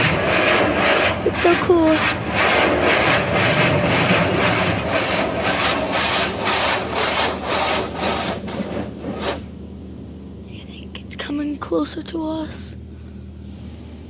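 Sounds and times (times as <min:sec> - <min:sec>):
car wash spray hitting car: 0:00.0 - 0:09.5.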